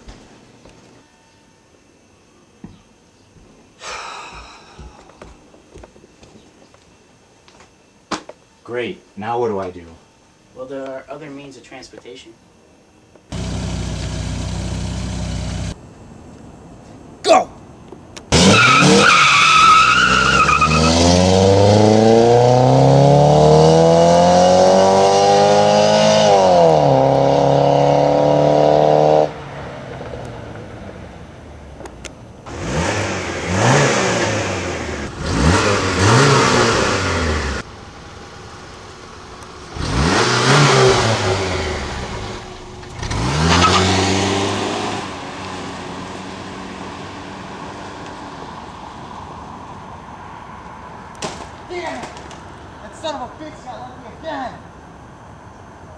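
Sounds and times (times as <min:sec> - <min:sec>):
car engine accelerating: 0:13.3 - 0:15.8, 0:18.3 - 0:49.8
car engine revving: 0:13.3 - 0:15.8, 0:18.3 - 0:49.0.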